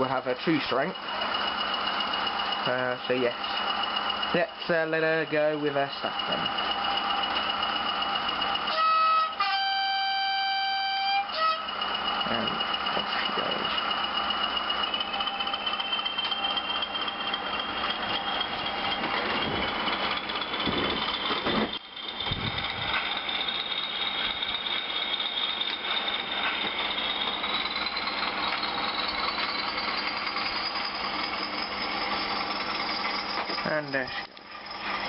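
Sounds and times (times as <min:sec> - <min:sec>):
model locomotive diesel engine sound: 0:00.0 - 0:35.0
high whistle: 0:06.1 - 0:19.8, 0:21.6 - 0:34.0.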